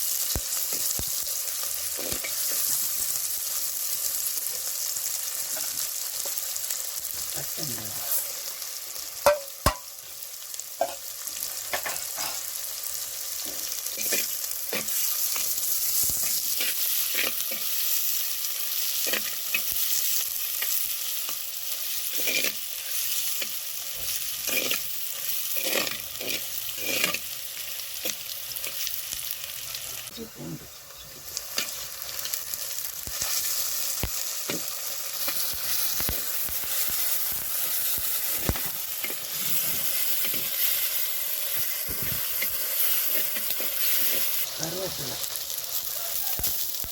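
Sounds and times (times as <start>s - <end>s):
onions sizzling in hot oil: 0.0s - 46.9s
spatula scraping pan: 13.4s - 18.0s, 21.8s - 27.4s, 36.7s - 44.4s.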